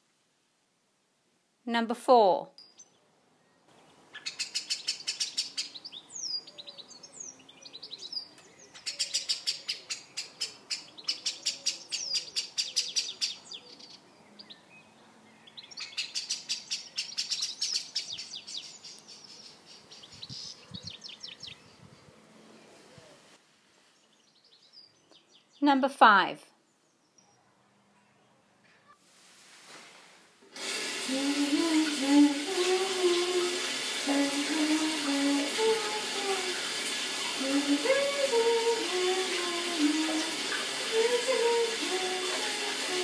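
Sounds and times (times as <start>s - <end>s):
birds singing high chirps: 2.6s - 22.2s, 24.0s - 25.6s.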